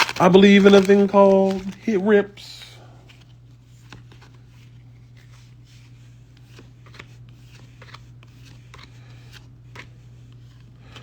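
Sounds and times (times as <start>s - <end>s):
steady low hum: 0.0s - 11.0s
trading cards sliding and flicking: 3.1s - 11.0s.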